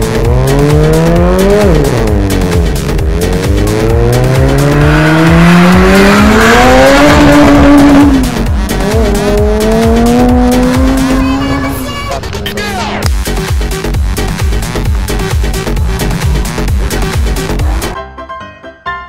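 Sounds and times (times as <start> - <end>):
race car engine revving: 0.0 - 18.0.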